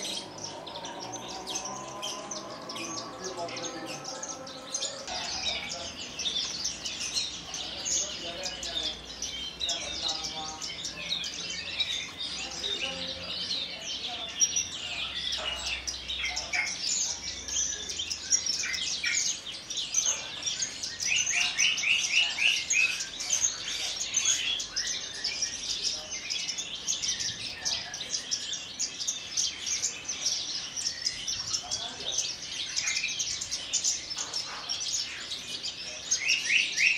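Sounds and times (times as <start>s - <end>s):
lark singing: 0.0s - 36.9s.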